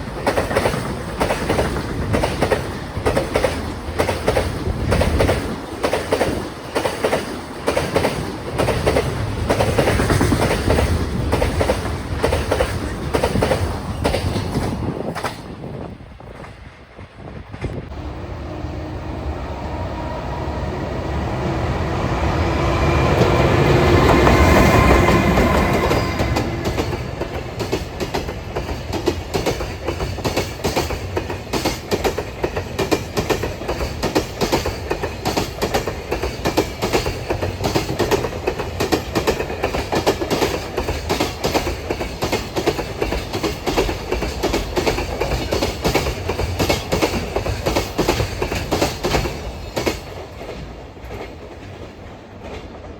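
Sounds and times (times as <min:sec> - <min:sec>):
train wheels clicking over rail joints: 0:00.0 - 0:17.9, 0:23.1 - 0:52.9
locomotive whine: 0:07.3 - 0:28.0.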